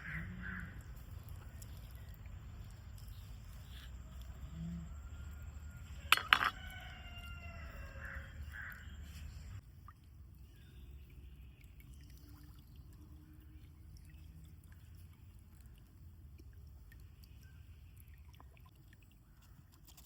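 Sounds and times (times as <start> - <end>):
rooster crowing: 4.5 - 8.8.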